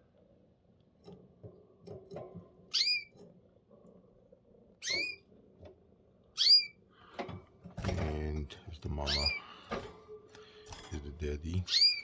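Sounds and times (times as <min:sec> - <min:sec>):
rustles and clicks in cage: 0:00.2 - 0:06.0, 0:07.1 - 0:12.0
canary rising calls: 0:02.7 - 0:03.1, 0:06.4 - 0:06.8, 0:11.7 - 0:12.0.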